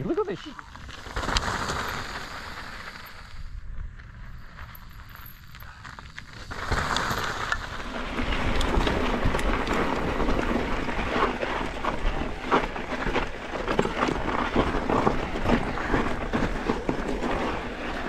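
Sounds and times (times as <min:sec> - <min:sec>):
bike tyres crunching over dirt: 0:00.0 - 0:18.0
bike knocks and rattles: 0:07.0 - 0:18.0.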